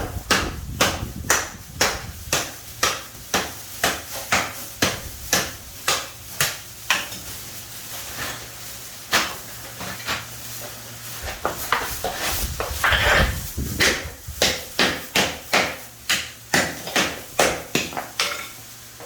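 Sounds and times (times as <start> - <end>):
scraping: 9.7 - 14.2.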